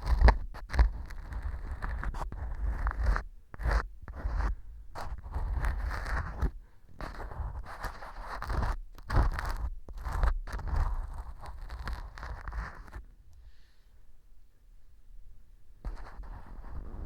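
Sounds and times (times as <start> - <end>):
ear pick scraping: 5.0 - 13.0.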